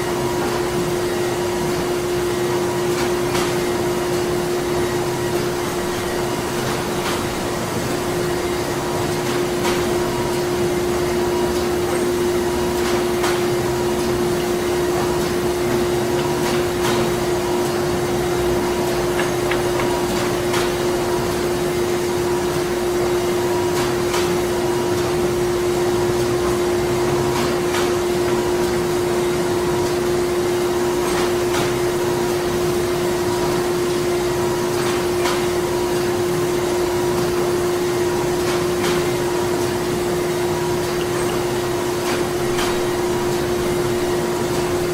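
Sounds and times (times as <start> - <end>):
printing machinery hum: 0.0 - 44.9.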